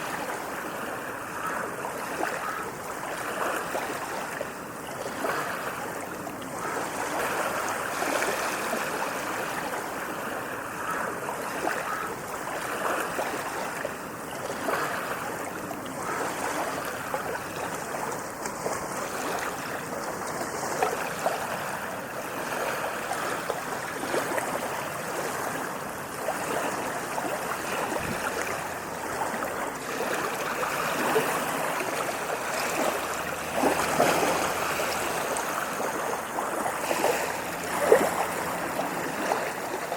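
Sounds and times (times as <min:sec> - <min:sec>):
ocean waves on a beach: 0:00.0 - 0:39.9.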